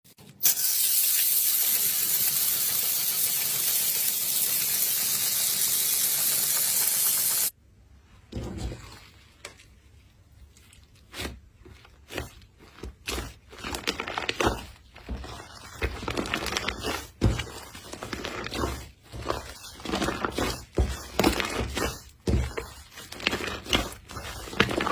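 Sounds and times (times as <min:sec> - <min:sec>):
slime squishing and crackling: 0:08.6 - 0:24.9.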